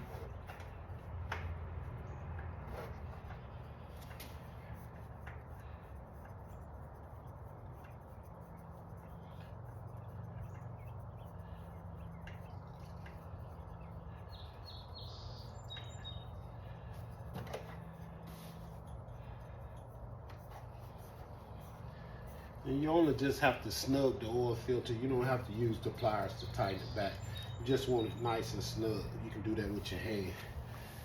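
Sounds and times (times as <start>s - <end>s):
steady low hum: 0.0s - 31.0s
bird chirping: 6.5s - 17.8s, 20.8s - 31.0s.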